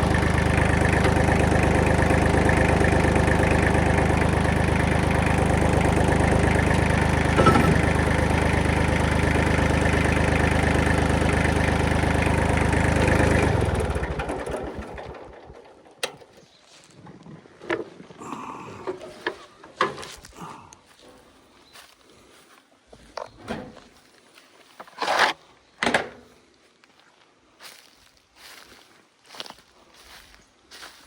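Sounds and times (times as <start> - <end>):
diesel engine idling: 0.0 - 15.5.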